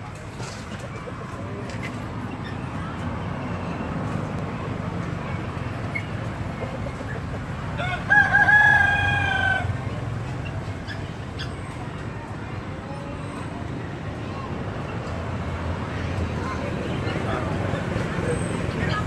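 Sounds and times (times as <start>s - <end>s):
rooster crowing: 7.8s - 9.8s.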